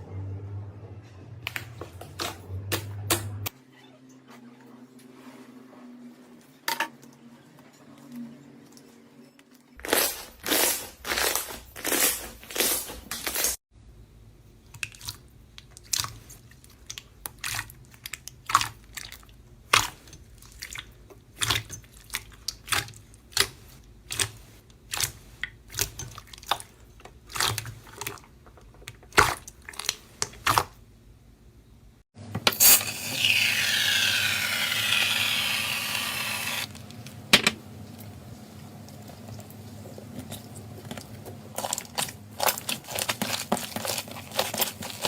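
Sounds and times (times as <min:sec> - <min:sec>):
slime squishing: 0:39.0 - 0:45.0.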